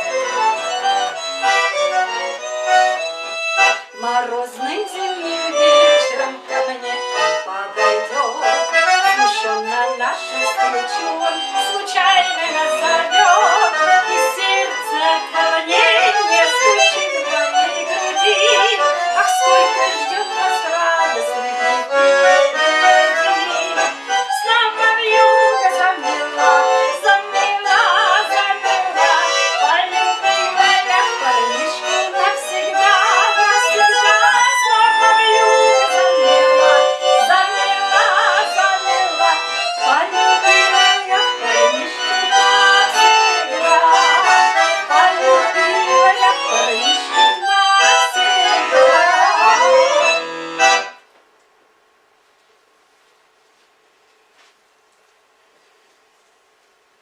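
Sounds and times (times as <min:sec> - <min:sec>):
accordion playing a melody: 0:00.0 - 0:51.1.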